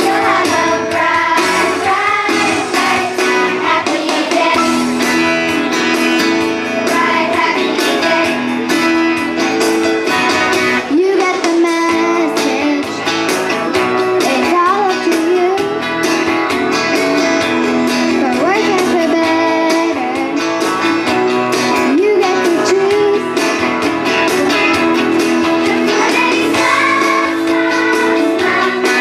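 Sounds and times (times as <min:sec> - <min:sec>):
children's chorus singing: 0:00.0 - 0:05.2, 0:06.6 - 0:08.7, 0:25.4 - 0:29.0
strummed guitar: 0:00.0 - 0:29.0.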